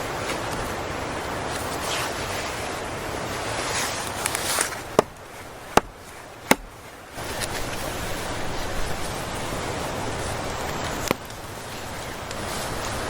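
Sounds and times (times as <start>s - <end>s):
sharp knocks: 4.1s - 7.2s.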